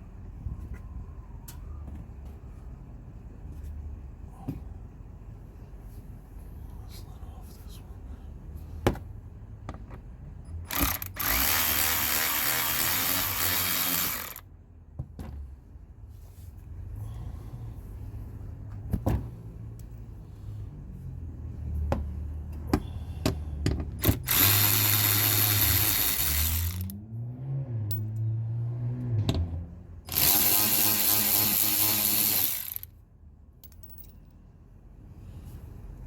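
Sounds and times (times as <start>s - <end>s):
handheld power tool running: 10.7s - 14.4s, 24.0s - 26.9s, 30.1s - 32.9s.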